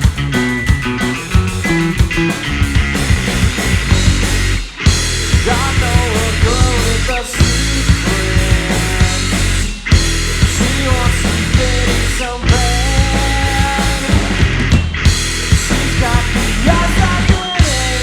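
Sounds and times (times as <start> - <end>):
rock band playing: 0.0 - 18.0
person singing: 5.4 - 9.4, 10.6 - 14.5, 15.7 - 18.0.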